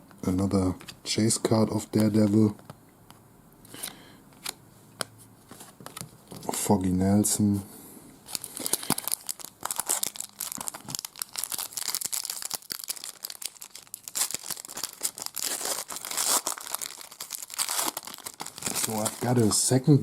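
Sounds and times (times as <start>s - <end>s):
wrapper crinkling and tearing: 8.3s - 19.8s.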